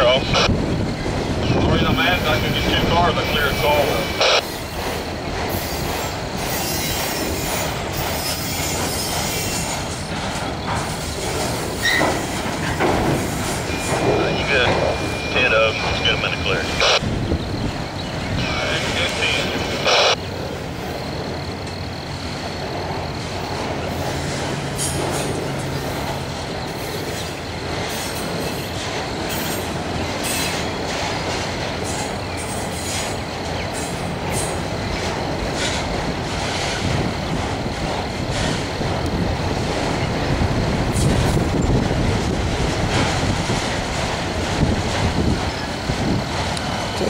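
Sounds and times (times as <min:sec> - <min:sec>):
steel wheels rumbling on rail: 0:00.0 - 0:47.0
sharp clicks and screeches: 0:02.2 - 0:17.0
high wheel squeal: 0:05.5 - 0:10.0, 0:10.8 - 0:16.0.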